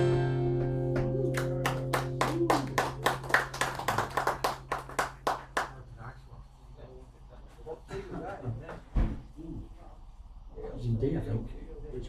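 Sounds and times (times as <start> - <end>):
guitar chord ringing: 0.0 - 5.6
audience clapping: 0.6 - 6.1.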